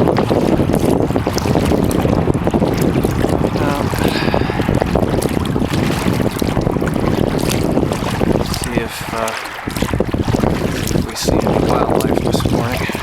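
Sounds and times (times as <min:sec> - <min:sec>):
paddle splashes and knocks: 0:00.0 - 0:13.0
wind buffeting microphone: 0:00.0 - 0:13.0.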